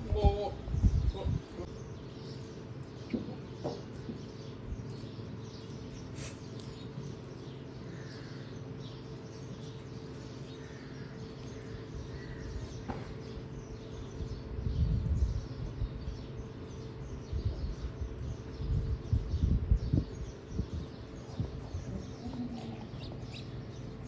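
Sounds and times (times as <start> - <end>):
low rumbling: 0.0 - 3.5, 10.5 - 24.0
steady low hum: 0.0 - 24.0.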